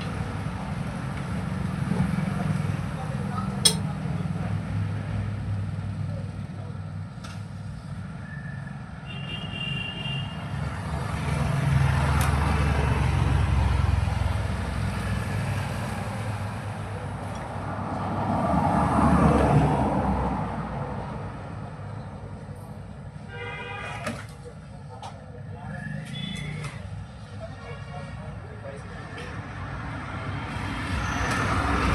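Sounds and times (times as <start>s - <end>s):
road traffic passing: 10.3s - 22.9s.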